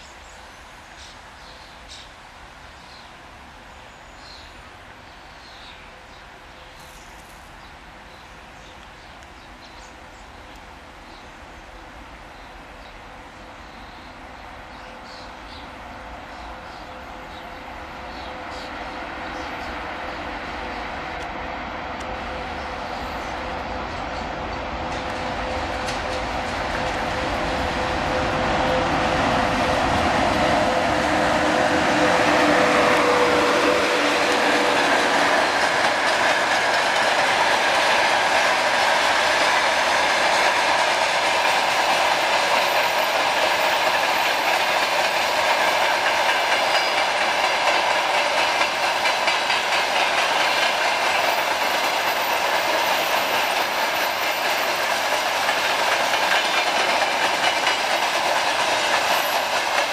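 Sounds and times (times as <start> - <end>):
electric locomotive hum: 15.3 - 59.9
freight wagons rolling on rails: 24.8 - 59.9.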